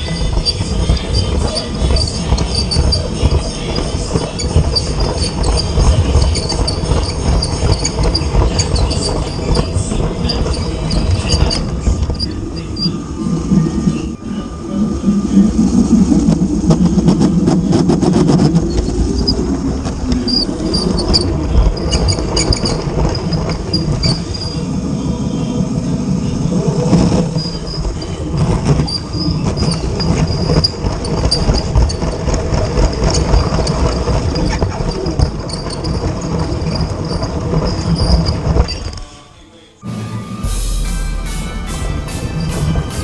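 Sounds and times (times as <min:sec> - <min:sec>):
toy trains running on plastic track: 0:00.0 - 0:12.9, 0:26.5 - 0:39.2.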